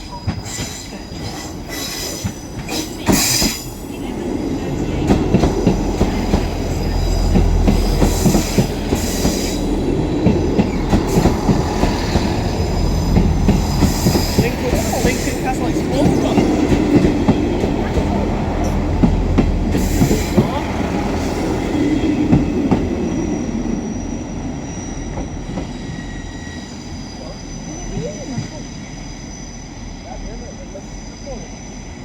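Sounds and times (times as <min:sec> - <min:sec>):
train rumbling: 0:00.0 - 0:32.0
high-pitched wheel squeals: 0:22.8 - 0:32.0.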